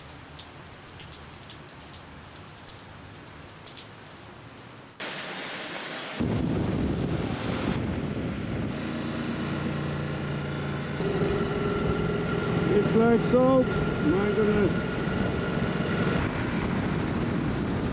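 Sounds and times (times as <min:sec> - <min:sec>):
steady rain: 0:00.0 - 0:07.8
loud low noise: 0:06.2 - 0:17.9.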